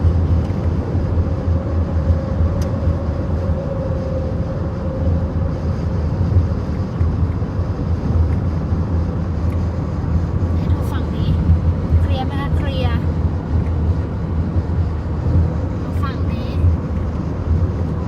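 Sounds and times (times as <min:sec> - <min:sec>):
car interior road drone: 0:00.0 - 0:18.0.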